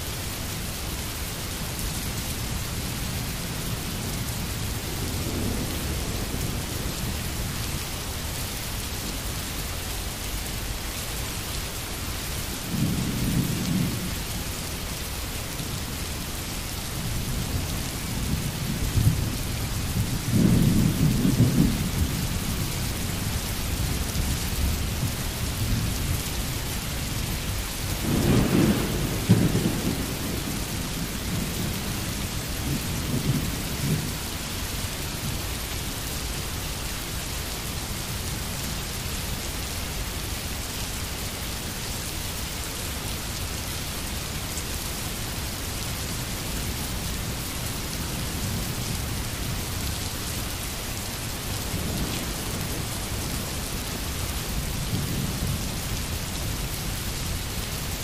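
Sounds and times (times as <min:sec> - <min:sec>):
steady rain hissing: 0:00.0 - 0:58.0
distant thunder rumbling: 0:18.1 - 0:22.7, 0:28.0 - 0:34.3.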